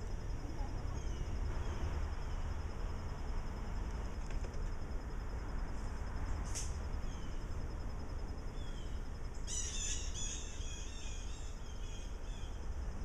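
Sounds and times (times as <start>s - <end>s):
small bird chirping: 8.5s - 12.7s.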